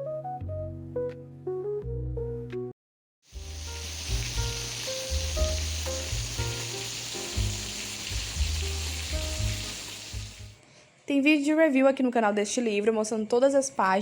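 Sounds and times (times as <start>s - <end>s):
soft keyboard music: 0.0s - 2.7s, 3.4s - 10.6s
rain hissing: 3.3s - 10.6s.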